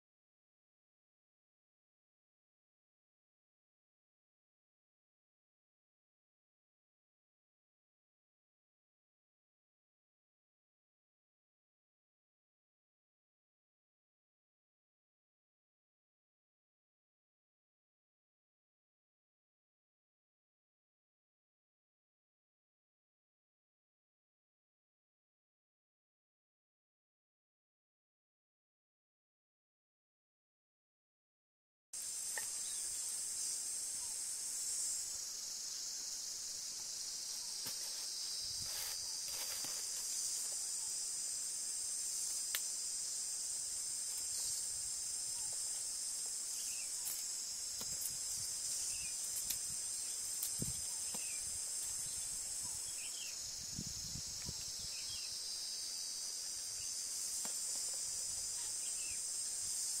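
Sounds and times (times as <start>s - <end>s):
insects droning: 32.0s - 60.0s.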